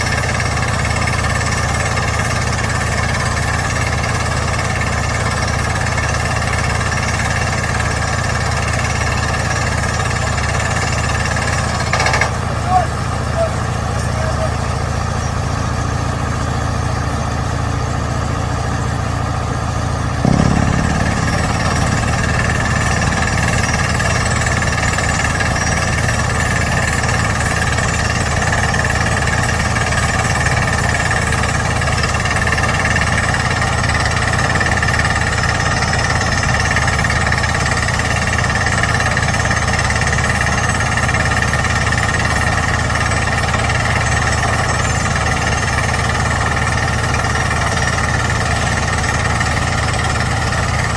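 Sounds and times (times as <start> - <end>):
rock drill hammering: 20.2 - 26.4
machine running: 20.2 - 26.8.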